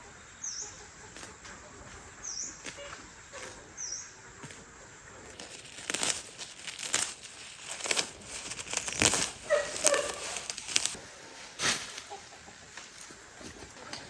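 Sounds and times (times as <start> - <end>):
rustling crinkling noises: 4.4 - 14.0.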